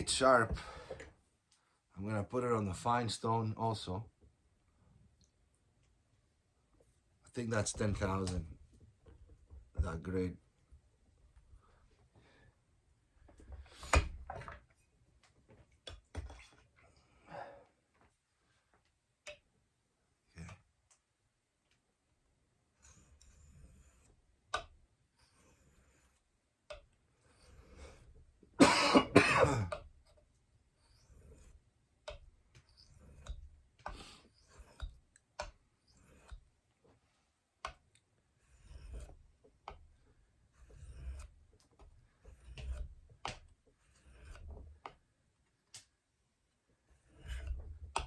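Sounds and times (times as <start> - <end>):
knife scraping on whetstone: 22.8 - 26.2, 27.1 - 28.2, 29.7 - 36.5, 38.4 - 45.0, 46.8 - 48.0
person coughing: 28.6 - 29.7.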